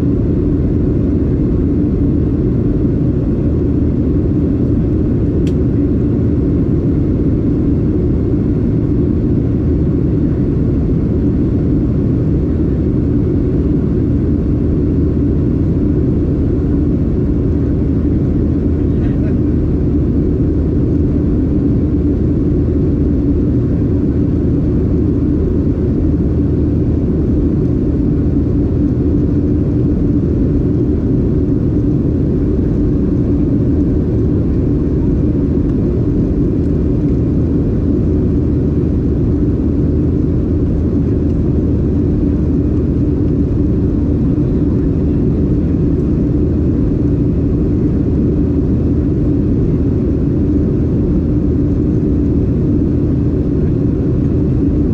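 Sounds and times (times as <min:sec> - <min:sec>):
airplane cabin engine drone: 0:00.0 - 0:54.9.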